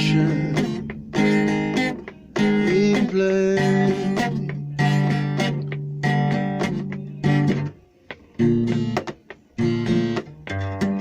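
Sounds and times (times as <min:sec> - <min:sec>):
guitar strumming chords: 0:00.0 - 0:11.0.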